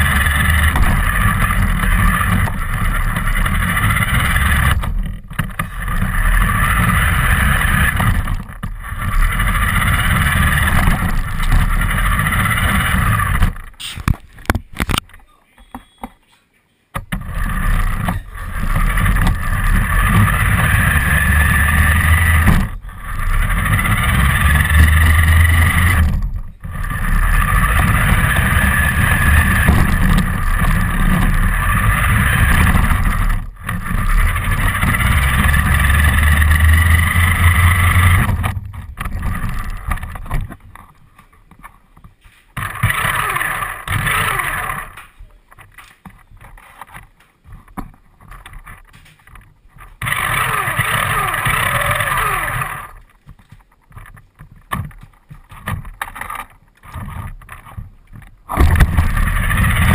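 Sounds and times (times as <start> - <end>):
motor whine: 0.0 - 13.8, 17.1 - 40.5, 42.6 - 45.1, 50.0 - 53.1, 58.6 - 59.9
rc car rolling rumble: 0.0 - 15.1, 16.9 - 59.9.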